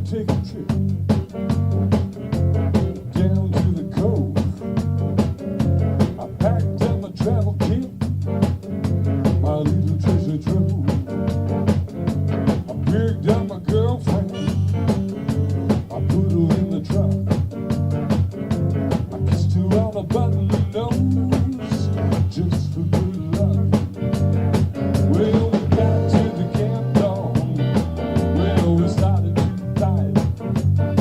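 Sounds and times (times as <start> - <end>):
bass: 0.0 - 31.0
drum kit beat: 0.0 - 31.0
lead guitar bending notes: 10.6 - 31.0.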